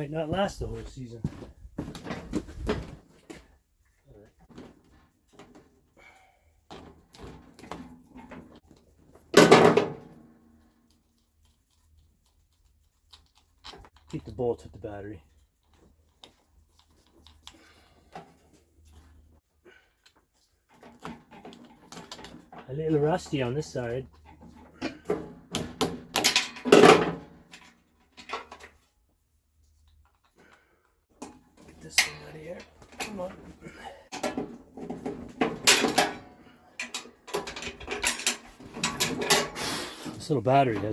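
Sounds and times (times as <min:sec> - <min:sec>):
small metal clicks and knocks: 0:20.0 - 0:22.7, 0:24.1 - 0:28.9, 0:34.1 - 0:39.6.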